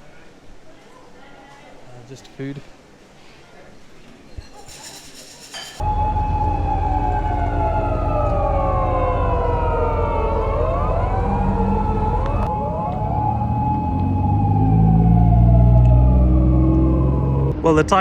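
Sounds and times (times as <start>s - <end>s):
police siren wailing: 5.8s - 17.6s
steady held tone: 5.8s - 17.6s
car engines rumbling: 5.9s - 18.0s.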